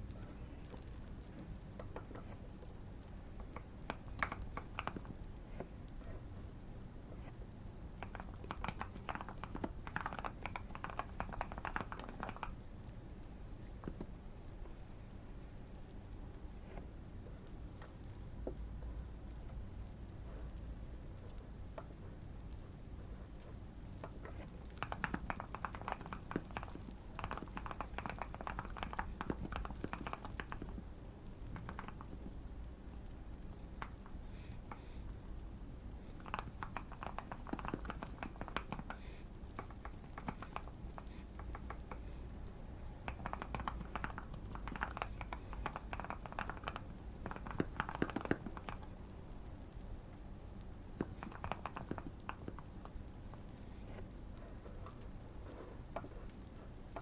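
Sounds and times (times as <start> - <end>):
fireplace crackle: 0.0 - 57.0
low steady hum: 0.0 - 57.0
mechanical keyboard typing: 0.1 - 6.8, 7.9 - 12.7, 21.0 - 33.1, 36.0 - 42.4, 43.0 - 49.1, 49.8 - 53.0.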